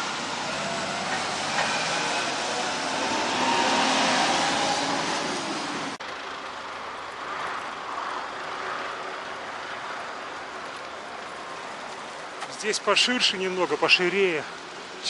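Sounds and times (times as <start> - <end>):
vehicle passing close by: 0.0 - 6.0
traffic rushing: 0.0 - 15.0.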